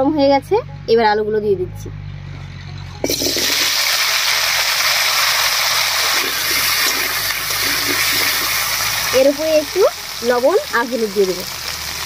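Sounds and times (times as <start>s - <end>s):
potatoes sizzling in hot oil: 3.1s - 12.0s.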